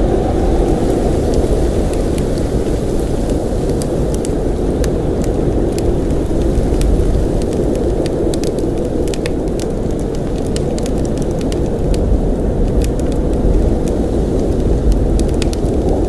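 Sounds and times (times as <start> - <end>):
blizzard wind roaring: 0.0 - 16.0
sharp ticks and crackles: 3.8 - 13.6.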